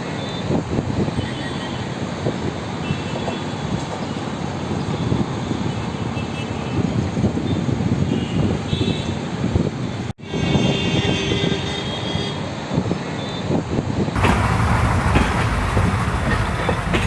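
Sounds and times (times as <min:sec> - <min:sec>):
vehicle rumbling: 0:14.2 - 0:17.0
wind buffeting microphone: 0:14.2 - 0:17.0.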